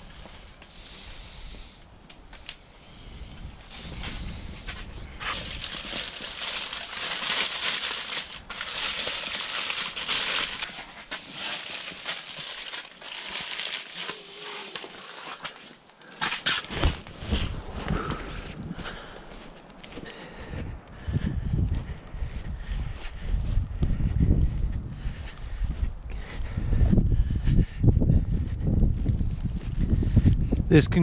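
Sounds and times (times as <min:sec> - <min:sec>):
wrapper crinkling: 0:03.7 - 0:17.7.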